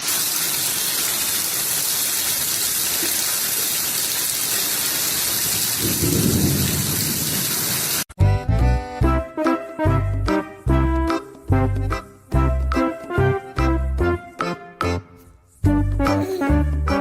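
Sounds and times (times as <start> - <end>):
heavy rain: 0.0 - 8.1
low roll of thunder: 5.8 - 7.8.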